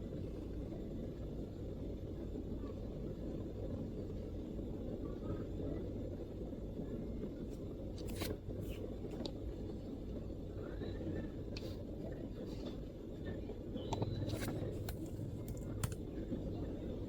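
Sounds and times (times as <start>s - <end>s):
low background rumble: 0.0s - 17.0s
keyboard keystrokes: 14.0s - 16.0s.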